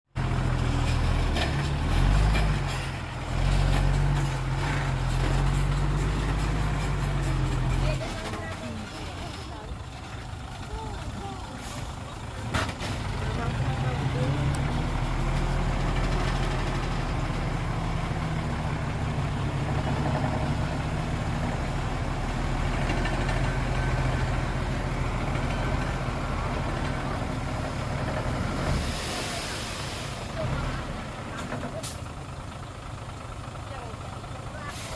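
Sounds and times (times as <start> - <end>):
heavy diesel engine running: 0.1 - 34.9
hiss: 28.8 - 30.3.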